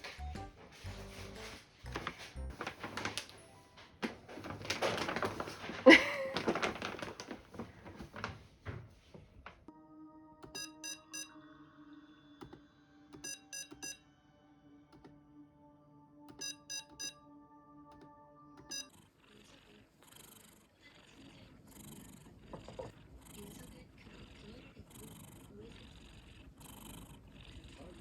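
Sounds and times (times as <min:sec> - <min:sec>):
soft sustained music: 0:00.0 - 0:04.0, 0:09.7 - 0:18.7
electronic beeper beeps: 0:10.5 - 0:11.4, 0:13.2 - 0:14.0, 0:16.3 - 0:17.2, 0:18.6 - 0:18.9.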